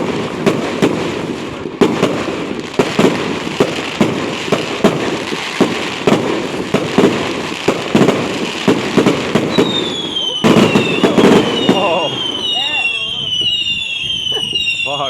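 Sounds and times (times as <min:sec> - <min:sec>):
fireworks bangs and crackles: 0:00.0 - 0:15.0
high whistle sliding down in pitch: 0:09.5 - 0:15.0.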